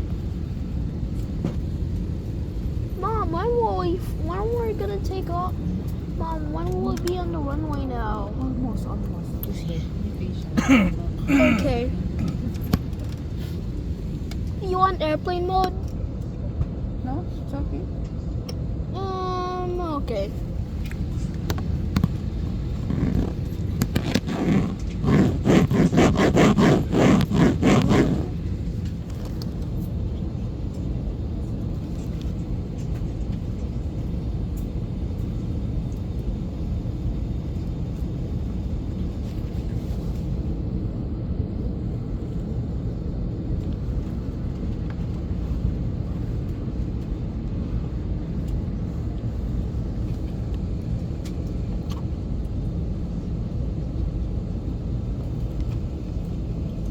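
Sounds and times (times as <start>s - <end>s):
airliner cabin rumble: 0.0s - 56.9s
scraping and rubbing on microphone: 22.0s - 28.5s.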